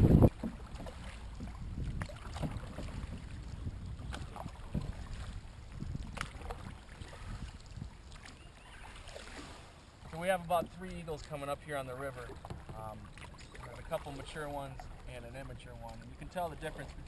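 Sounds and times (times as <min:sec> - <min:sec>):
wind rumble on microphone: 0:00.0 - 0:08.4
faint water sounds: 0:00.0 - 0:17.0.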